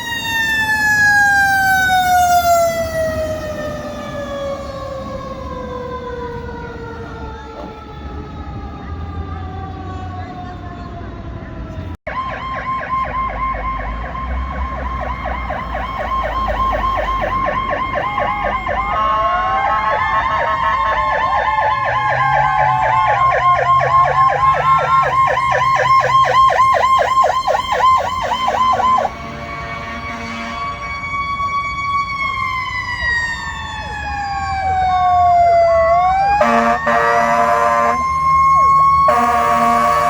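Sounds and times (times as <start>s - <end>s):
second siren wailing: 0.0s - 40.0s
truck engine rumbling: 0.0s - 40.0s
siren fast yelp: 12.1s - 29.1s, 30.1s - 40.0s.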